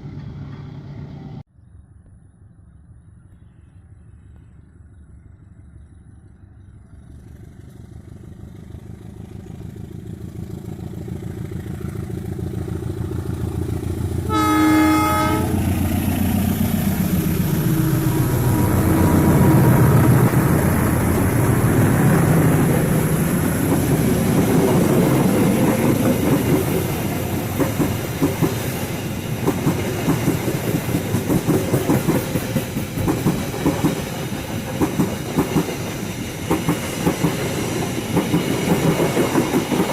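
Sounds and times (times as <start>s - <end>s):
diesel locomotive engine: 0.0s - 1.5s, 3.2s - 39.9s
wheels clacking over rail joints: 8.8s - 39.9s
train horn blast: 14.2s - 16.2s, 17.4s - 21.6s.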